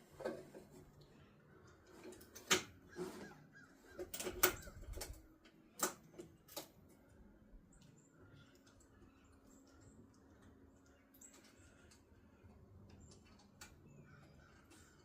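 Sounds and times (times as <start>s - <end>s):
hand tools clicking and knocking: 3.9s - 6.8s.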